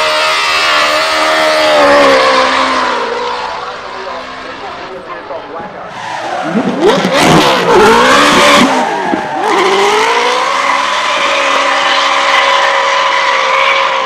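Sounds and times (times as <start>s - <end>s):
car engine revving hard: 0.0s - 4.6s, 6.2s - 14.0s
tyres skidding: 0.0s - 14.0s.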